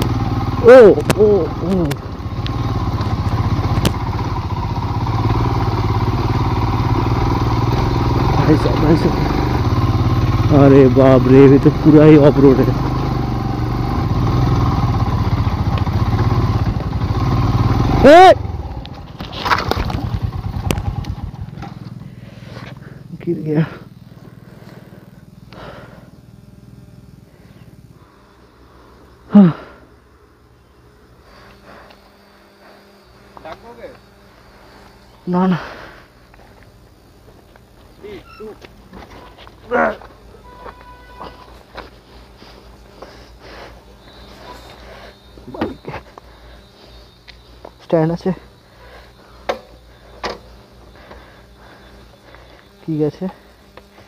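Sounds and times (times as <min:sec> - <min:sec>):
motorcycle engine pulling away: 0:00.0 - 0:26.1
motorcycle engine idling: 0:00.0 - 0:54.0.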